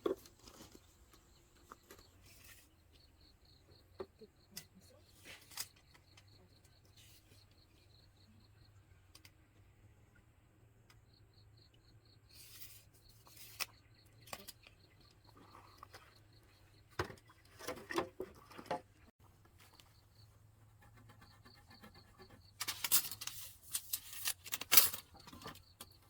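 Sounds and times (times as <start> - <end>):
faint insect chirping: 1.2 - 10.0, 10.7 - 17.0.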